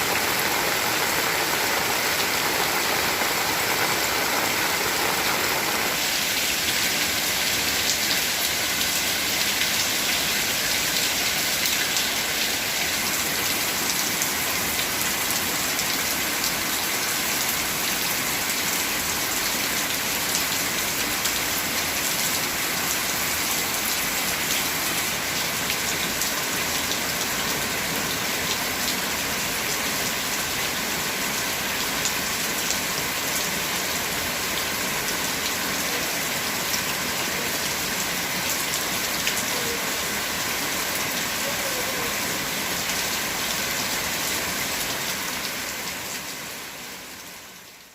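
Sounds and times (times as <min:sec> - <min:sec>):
individual raindrops: 0:00.0 - 0:16.6
heavy rain falling: 0:00.0 - 0:47.9.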